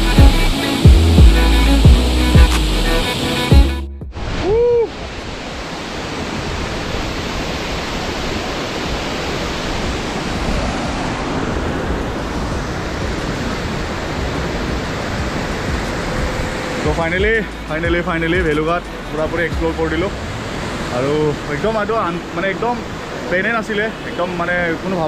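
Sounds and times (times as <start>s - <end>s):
rising-and-falling tone: 0.0s - 4.8s
waterfall roaring: 4.2s - 25.0s.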